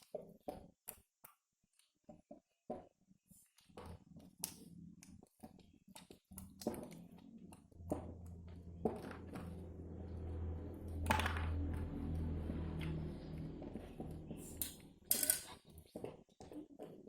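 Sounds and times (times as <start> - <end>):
low steady hum: 7.5 - 15.6.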